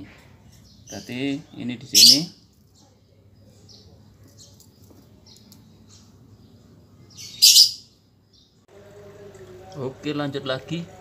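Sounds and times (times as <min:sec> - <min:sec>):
small birds chirping: 0:00.0 - 0:08.7
loud harsh bird call: 0:01.9 - 0:02.4, 0:07.1 - 0:08.0.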